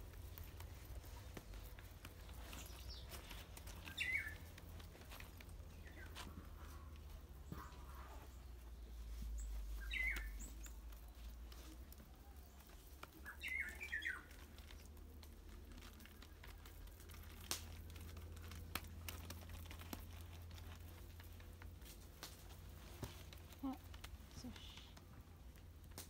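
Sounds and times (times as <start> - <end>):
small bird chirping: 0.0 - 20.9
hands patting dough: 9.4 - 26.0.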